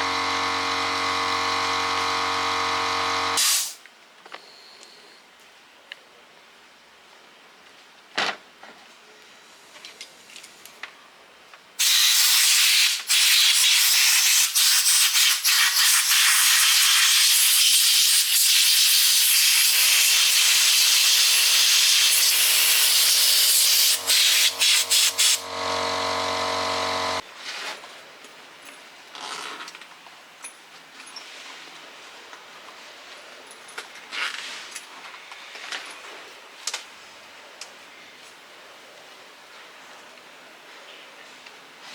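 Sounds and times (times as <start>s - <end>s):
motor hum: 0.0s - 3.4s, 19.8s - 27.2s
power tool rasping metal: 19.2s - 27.2s.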